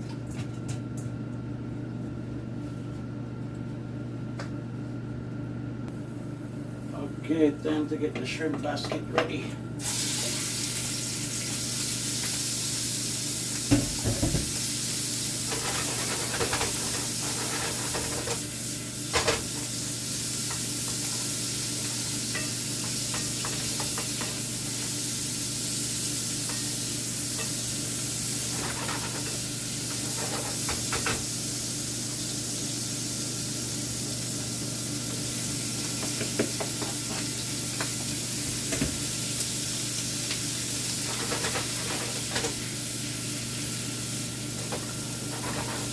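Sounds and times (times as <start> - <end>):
shrimp frying hiss: 9.8 - 45.9.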